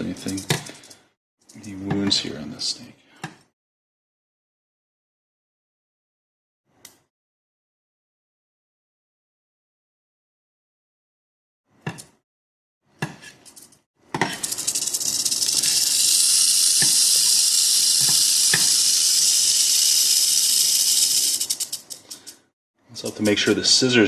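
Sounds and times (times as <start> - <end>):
rattlesnake rattling buzz: 14.4 - 22.4
sharp clicks: 14.5 - 22.4.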